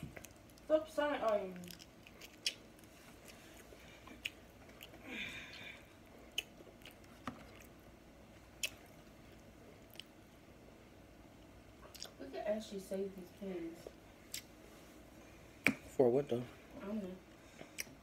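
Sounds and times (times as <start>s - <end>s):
person chewing: 0.0s - 10.2s, 11.8s - 12.2s, 14.2s - 14.6s, 17.6s - 18.0s.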